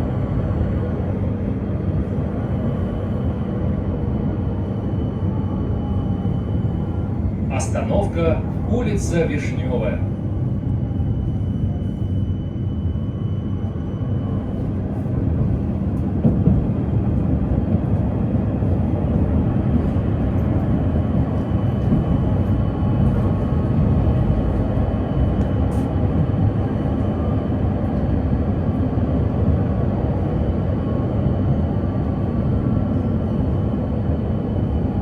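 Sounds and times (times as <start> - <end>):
tram wheels rumbling on rails: 0.0 - 12.1, 13.6 - 35.0.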